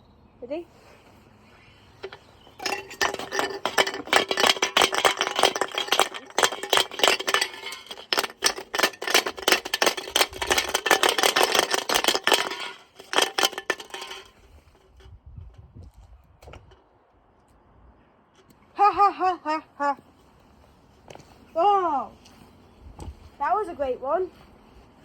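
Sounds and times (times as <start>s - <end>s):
brick banging in washing machine: 2.0s - 14.4s.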